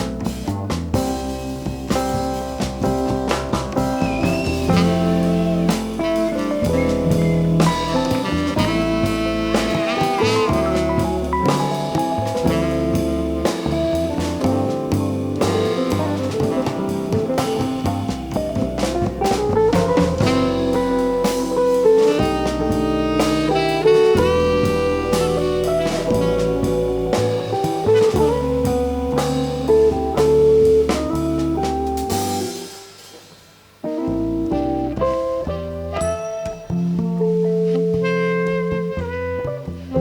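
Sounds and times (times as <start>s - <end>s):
drum kit: 0.0s - 40.0s
jazz band playing: 0.0s - 40.0s
saxophone line: 4.0s - 18.6s, 19.2s - 31.8s, 34.5s - 36.8s.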